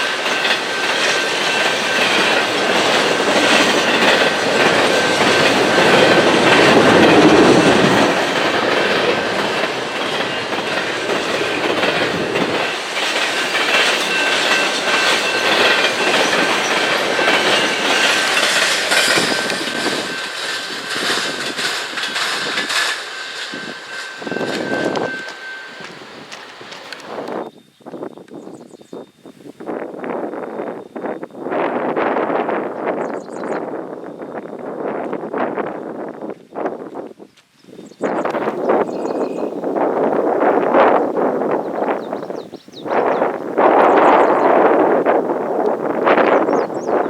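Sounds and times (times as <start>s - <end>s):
train wheels clicking over rail joints: 0.0s - 27.4s, 38.2s - 47.0s
thin steady squeal: 0.0s - 28.1s, 38.4s - 47.0s.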